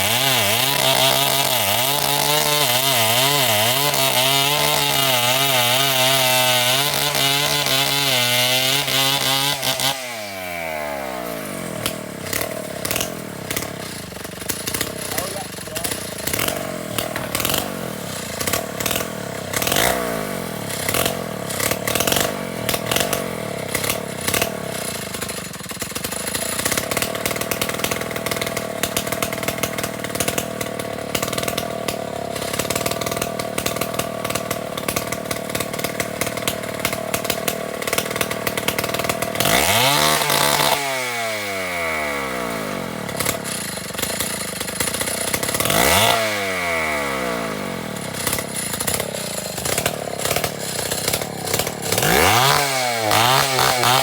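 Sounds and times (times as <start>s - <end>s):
chainsaw running and revving: 0.0s - 54.0s.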